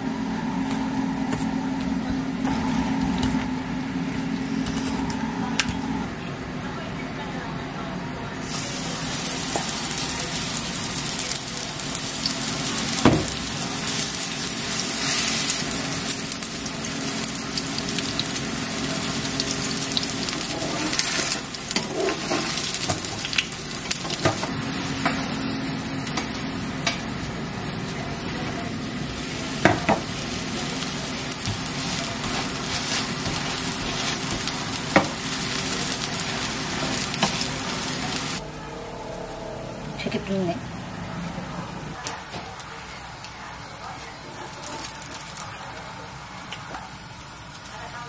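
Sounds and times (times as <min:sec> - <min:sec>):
food sizzling in frying: 0:08.4 - 0:38.4.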